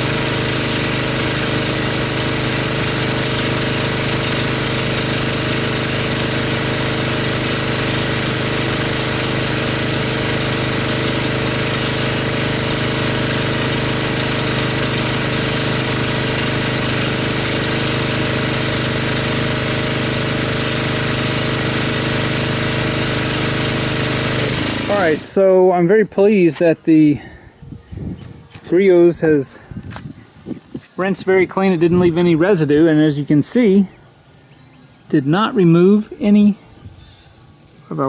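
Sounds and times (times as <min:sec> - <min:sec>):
water spray hissing: 0:00.0 - 0:25.6
pressure washer machine drone: 0:00.0 - 0:27.4, 0:30.3 - 0:38.0.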